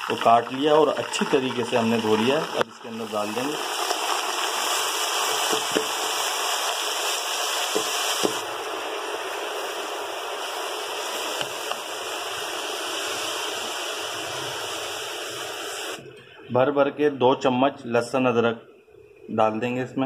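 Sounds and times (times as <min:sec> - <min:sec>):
spinach sizzling in hot oil: 0:00.0 - 0:16.0.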